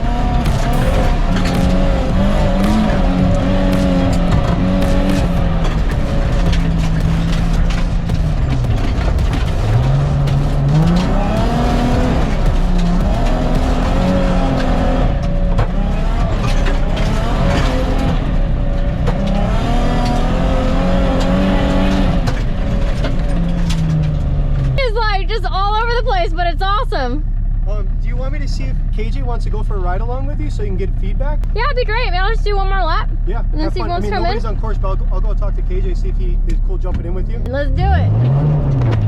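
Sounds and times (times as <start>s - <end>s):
tyre and gravel noise: 0.0s - 24.8s
car engine revving: 0.0s - 39.0s.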